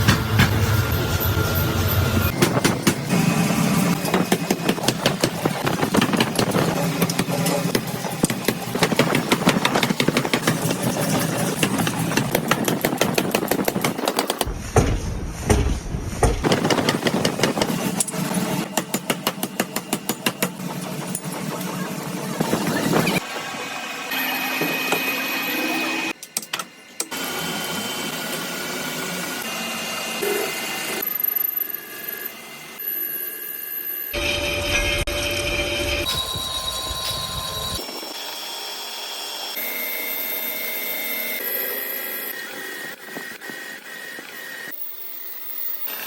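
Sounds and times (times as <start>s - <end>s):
factory machinery clattering: 0.0s - 23.6s.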